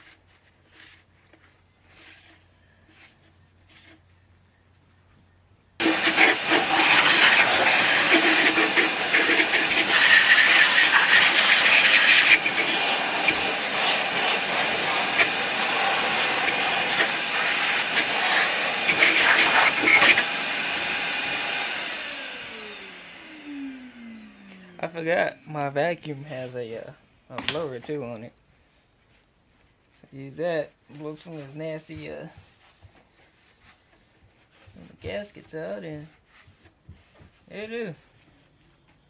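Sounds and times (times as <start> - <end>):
motor winding down: 5.8 - 25.4
shop vacuum blowing air: 5.8 - 26.9.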